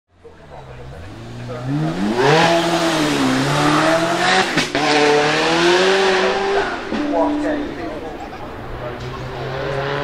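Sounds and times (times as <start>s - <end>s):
car engine revving hard: 0.8s - 7.4s, 8.8s - 10.0s.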